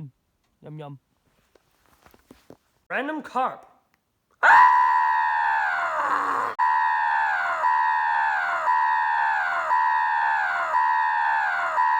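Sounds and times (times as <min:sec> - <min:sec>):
high electronic siren tone: 0:06.6 - 0:11.9.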